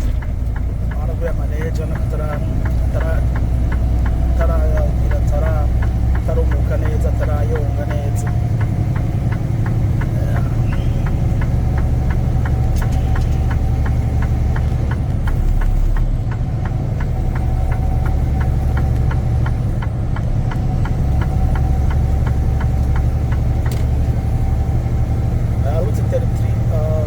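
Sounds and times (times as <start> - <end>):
truck engine drone: 0.0 - 27.0
turn signal ticking: 0.0 - 27.0.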